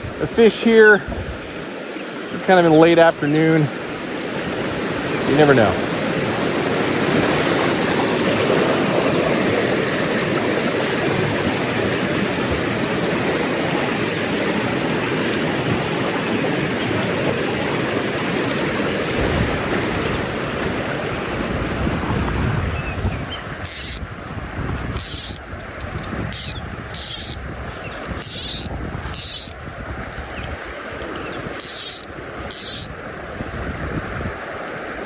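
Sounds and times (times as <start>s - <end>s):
sharp rattle: 23.7s - 24.0s, 25.0s - 29.6s, 31.6s - 32.9s.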